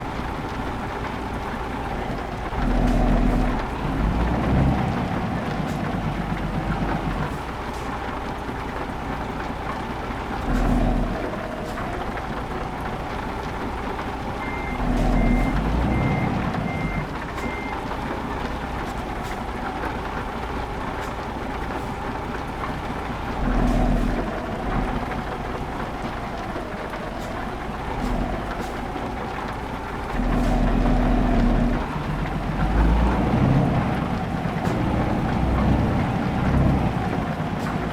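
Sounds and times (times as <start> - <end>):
truck engine running: 0.0 - 37.9
reversing alarm beeping: 14.4 - 17.8.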